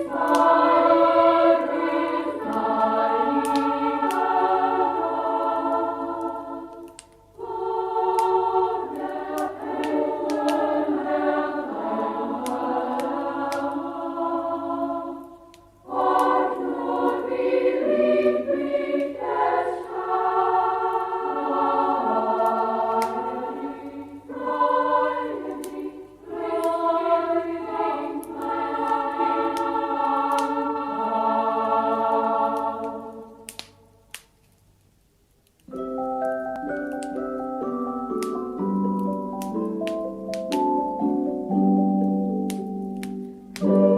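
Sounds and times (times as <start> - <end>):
choir singing: 0.0 - 33.9, 43.6 - 43.9
faint sharp clicks: 3.4 - 4.2, 6.2 - 7.4, 8.1 - 10.6, 32.5 - 37.2, 42.5 - 43.8.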